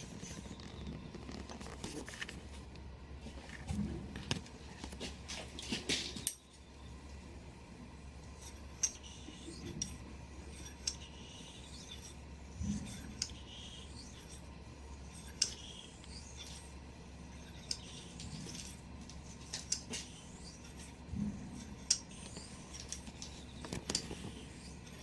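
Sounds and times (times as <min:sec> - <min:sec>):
razor rubbing on whetstone: 0:08.4 - 0:25.0
small metallic clicks: 0:10.6 - 0:11.0.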